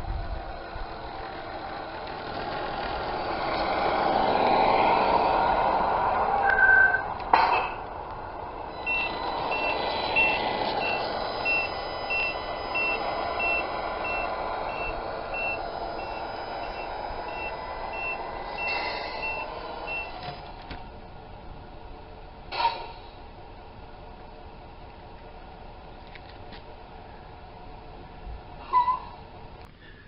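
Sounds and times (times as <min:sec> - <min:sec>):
engine hum from speaker: 0:00.0 - 0:30.0
short high reversing beeps: 0:06.4 - 0:07.8, 0:08.7 - 0:20.2.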